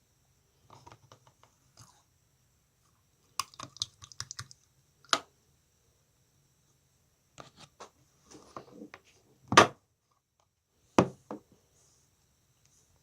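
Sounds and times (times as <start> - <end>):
air bubbles popping in slime: 3.4 - 4.5.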